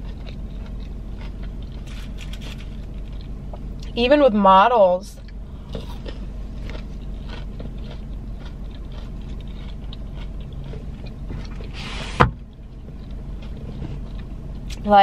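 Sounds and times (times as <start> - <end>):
person chewing food: 0.0 - 4.0, 5.2 - 11.8, 12.4 - 14.8
low hum in car cabin: 0.0 - 15.0
loud thump: 12.1 - 12.4.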